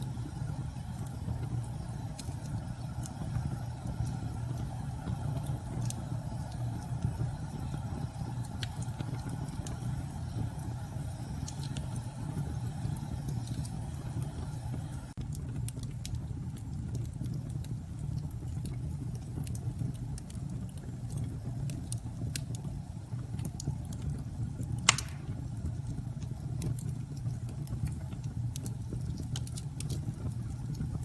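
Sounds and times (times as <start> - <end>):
wood fire crackling: 0.0 - 31.0.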